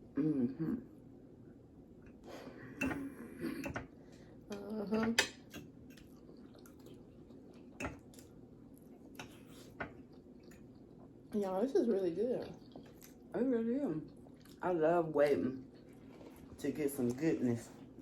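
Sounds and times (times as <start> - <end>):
cutlery clinking on plates: 2.8 - 3.9.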